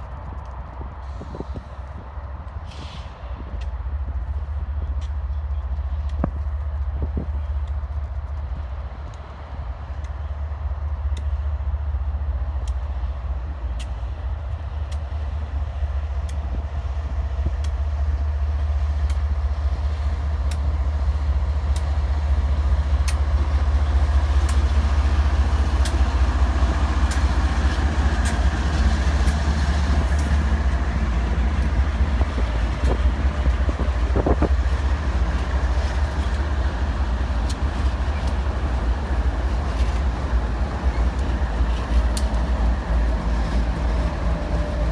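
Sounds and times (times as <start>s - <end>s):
diesel locomotive engine rumble: 0.0s - 44.9s
wheels clicking over rail joints: 19.9s - 44.9s.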